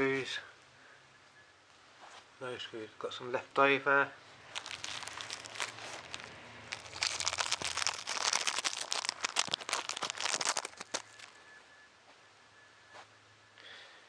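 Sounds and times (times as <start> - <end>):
plastic bag crinkling: 4.4 - 11.4.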